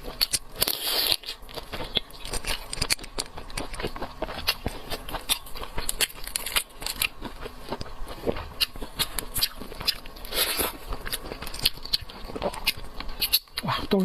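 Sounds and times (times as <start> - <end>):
chewing seafood: 0.0 - 14.0.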